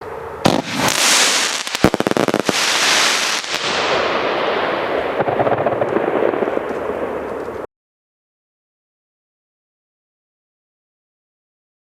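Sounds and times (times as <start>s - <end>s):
firecrackers crackling rattle: 0.5s - 3.9s.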